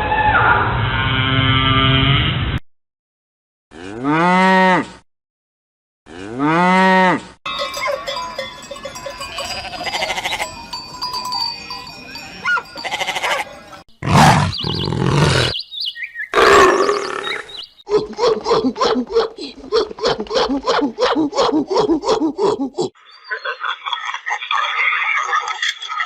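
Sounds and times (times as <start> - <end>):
cow mooing: 3.8 - 5.0, 6.1 - 7.3, 12.6 - 15.5
cowbells clanking: 7.5 - 13.9.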